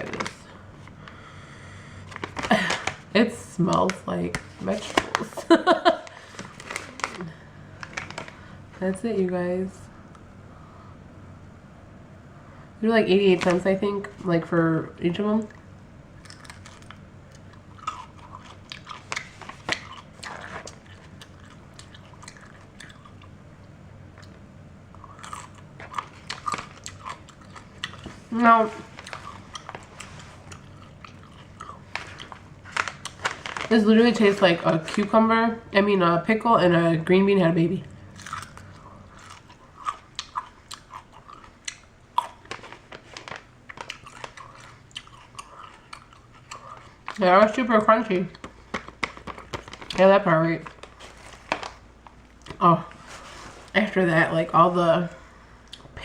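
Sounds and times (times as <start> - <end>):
person chewing crunchy beans: 16.2 - 23.4, 24.1 - 33.7, 38.0 - 47.2.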